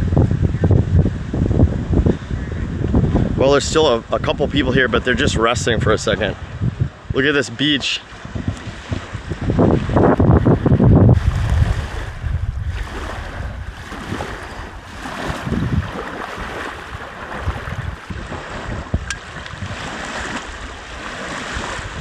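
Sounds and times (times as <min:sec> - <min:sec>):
small waves washing on beach: 0:00.0 - 0:22.0
wind buffeting microphone: 0:00.0 - 0:22.0.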